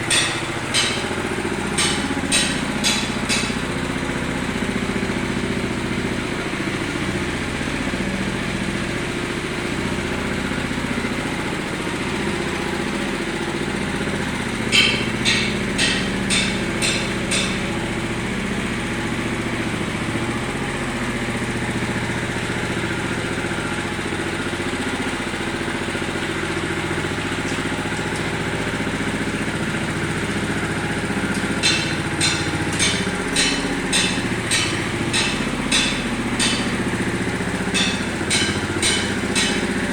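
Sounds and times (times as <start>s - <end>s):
sharp taps: 14.7s - 17.7s, 31.3s - 36.9s.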